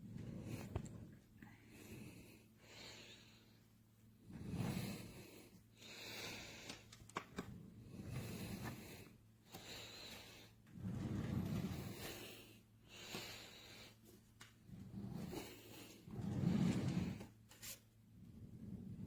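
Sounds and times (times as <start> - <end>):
person breathing close to microphone: 4.3 - 7.0, 7.6 - 17.4.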